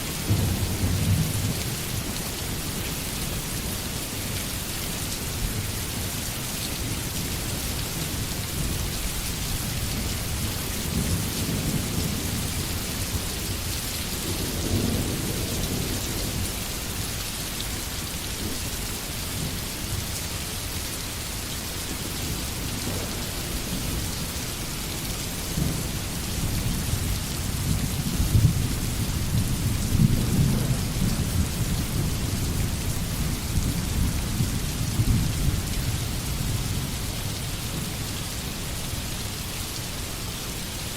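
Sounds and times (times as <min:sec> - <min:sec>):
heavy rain falling: 0:00.0 - 0:40.9
distant thunder rolling: 0:27.6 - 0:32.4.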